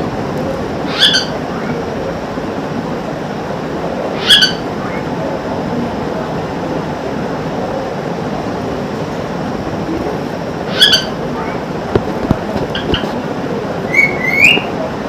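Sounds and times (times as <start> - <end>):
parrot shrill calls: 0.9 - 1.4, 4.2 - 5.0, 10.7 - 11.2, 13.9 - 14.7.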